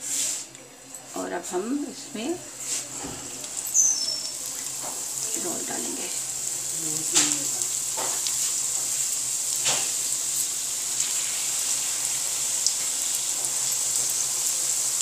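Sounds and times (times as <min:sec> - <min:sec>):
rolls sizzling in hot oil: 0:00.0 - 0:15.0
small oil crackles: 0:02.4 - 0:15.0.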